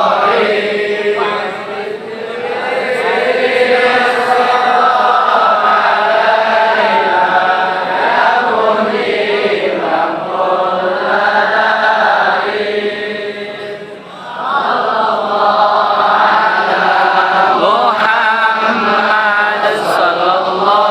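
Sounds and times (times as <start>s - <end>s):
voices chanting: 0.0s - 20.9s.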